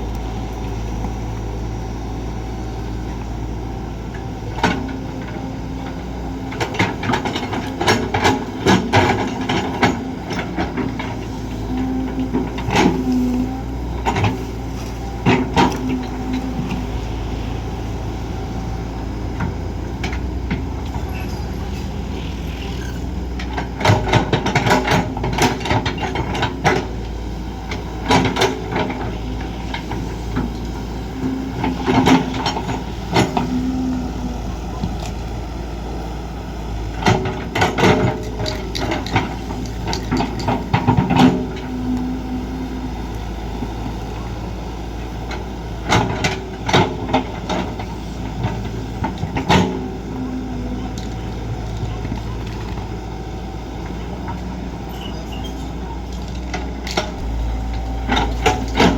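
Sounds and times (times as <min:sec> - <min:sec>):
excavator diesel engine running: 0:00.0 - 0:58.9
knocks and clanks from digging: 0:56.5 - 0:58.9.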